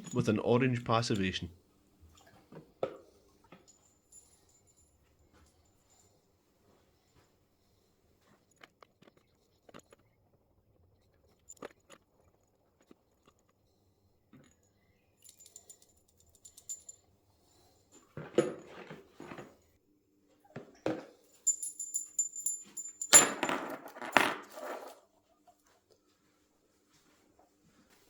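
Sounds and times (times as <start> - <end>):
metal bolts clinking and rattling: 0.0 - 0.4, 21.4 - 25.0.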